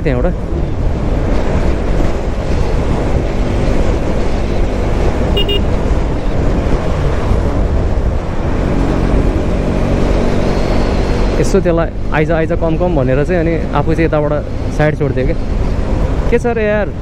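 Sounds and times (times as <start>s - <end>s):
wind rush over microphone: 0.0s - 12.8s
motorcycle engine and road noise: 0.0s - 17.0s
brief high beep: 5.4s - 5.7s.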